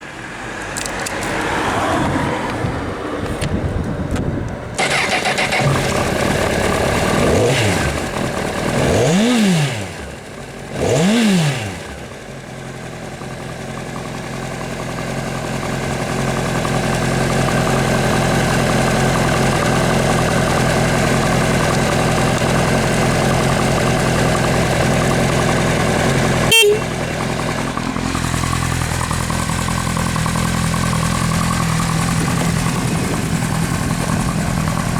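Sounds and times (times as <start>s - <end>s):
motorcycle engine revving and idling: 0.0s - 34.9s.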